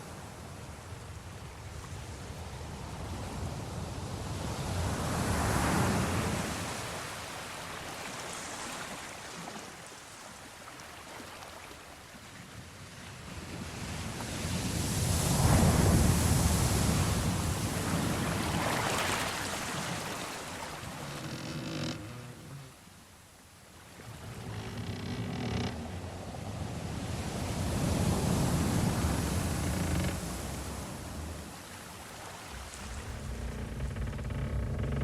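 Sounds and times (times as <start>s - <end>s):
sea waves washing: 14.4s - 23.1s, 23.7s - 35.0s.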